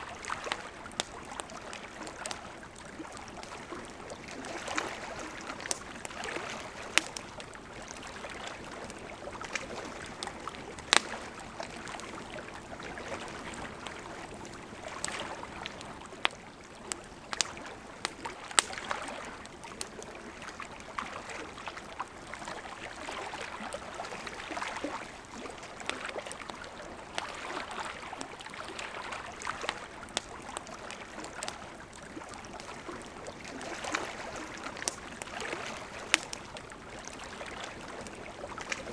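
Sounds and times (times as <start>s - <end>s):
fire crackling and popping: 0.0s - 21.0s, 24.0s - 38.9s
wood snapping in fire: 0.2s - 2.4s, 3.0s - 12.2s, 14.9s - 20.1s, 29.3s - 38.9s.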